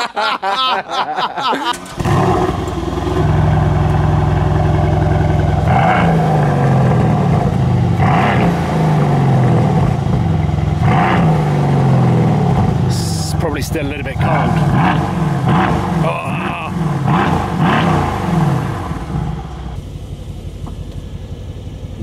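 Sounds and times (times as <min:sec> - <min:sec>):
men laughing: 0:00.0 - 0:02.0, 0:16.0 - 0:16.8
car engine starting and idling: 0:01.6 - 0:22.0
engine throttle blips: 0:01.7 - 0:22.0.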